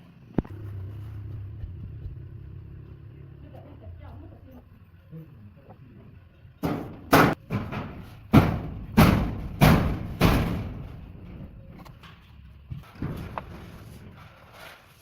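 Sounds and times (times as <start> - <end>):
heavy ringing knocks: 6.6 - 11.3.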